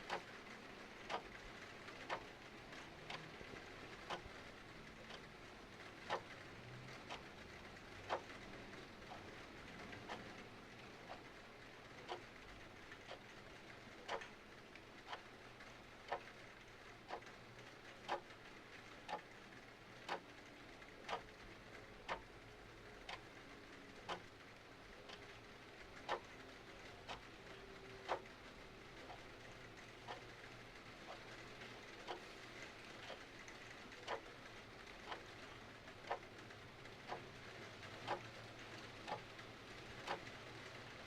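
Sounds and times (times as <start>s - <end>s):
clock ticking: 0.0s - 41.0s.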